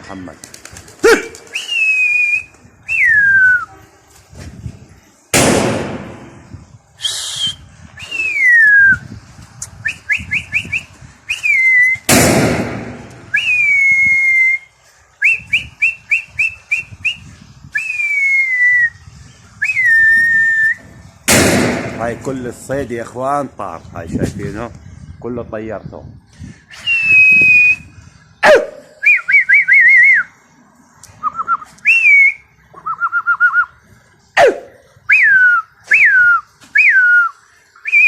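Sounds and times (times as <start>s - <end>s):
person whistling: 1.6s - 3.7s, 7.0s - 9.0s, 13.3s - 14.6s, 26.7s - 27.8s, 31.2s - 33.7s, 35.1s - 38.0s
loud rushing noise bursts: 5.3s - 7.3s, 12.1s - 13.6s, 21.3s - 22.6s.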